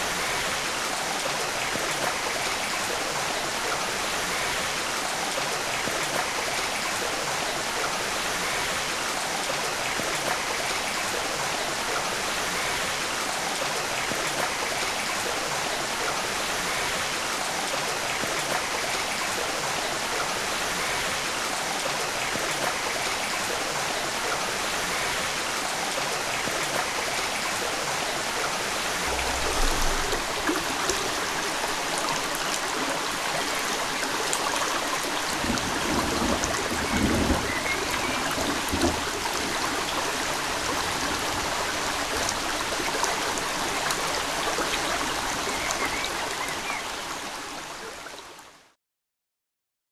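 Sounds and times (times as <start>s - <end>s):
running water: 0.0s - 48.6s
low bumps: 28.8s - 31.8s, 35.2s - 42.2s.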